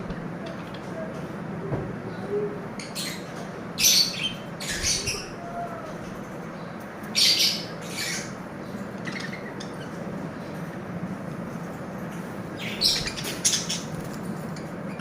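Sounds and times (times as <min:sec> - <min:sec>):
steady low hum: 0:00.0 - 0:15.0
lovebirds squawking: 0:02.5 - 0:05.7, 0:07.1 - 0:10.6, 0:12.5 - 0:15.0.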